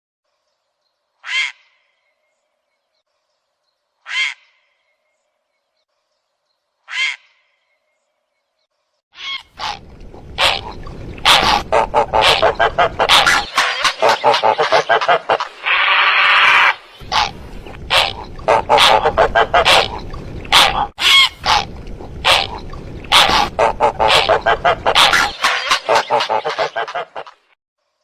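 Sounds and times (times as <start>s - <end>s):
heron croaking call: 9.2s - 27.0s
chorus of birds calling: 10.4s - 27.3s.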